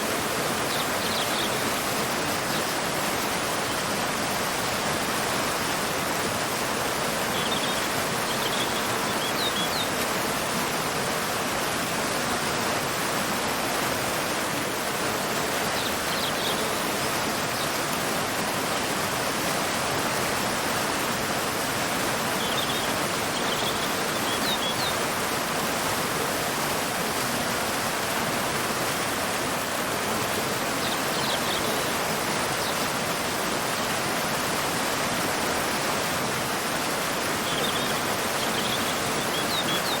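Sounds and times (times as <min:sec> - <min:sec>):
waterfall rushing: 0:00.0 - 0:40.0
faint bird chirps: 0:07.3 - 0:09.9, 0:37.4 - 0:40.0.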